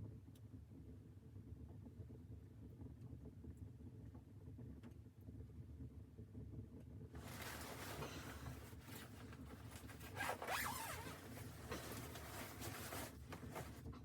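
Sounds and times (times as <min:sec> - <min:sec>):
zipper being pulled: 0:07.2 - 0:13.8
gear handling: 0:07.2 - 0:13.9
fabric rustling: 0:07.2 - 0:14.0.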